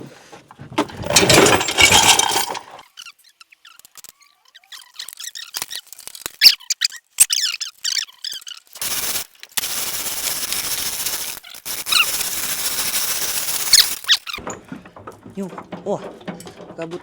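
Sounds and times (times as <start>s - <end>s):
short high squeaks: 3.4s - 8.8s, 13.4s - 14.4s
steady hiss: 8.8s - 14.1s.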